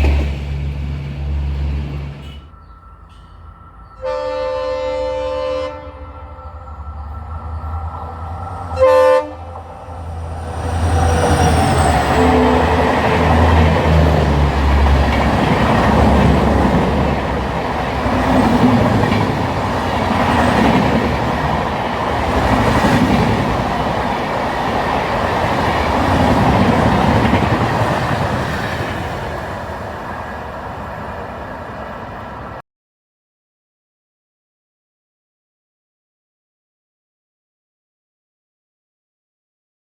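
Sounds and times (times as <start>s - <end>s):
locomotive passing: 0.0s - 32.6s
train horn blast: 4.0s - 7.2s, 8.7s - 13.7s
coaches rattling over rail joints: 9.4s - 32.5s.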